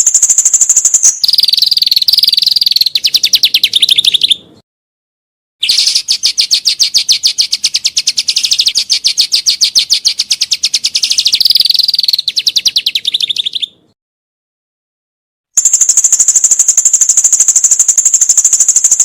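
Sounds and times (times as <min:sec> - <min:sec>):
songbird rapid rattling song: 0:00.0 - 0:04.6, 0:05.6 - 0:13.9, 0:15.6 - 0:19.0.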